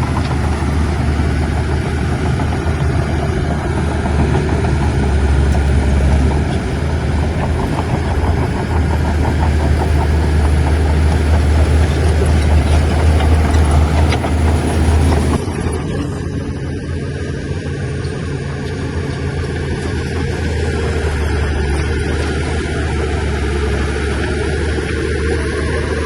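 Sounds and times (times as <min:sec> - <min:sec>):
faint clatter: 0:00.0 - 0:15.4
diesel engine droning: 0:00.0 - 0:26.0.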